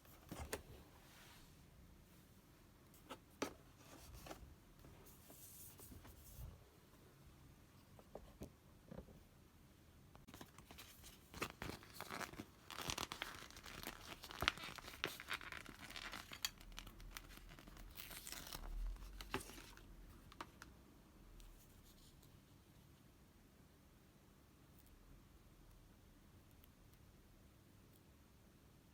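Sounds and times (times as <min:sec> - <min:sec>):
thin wrapping tearing and crinkling: 0:10.5 - 0:19.8.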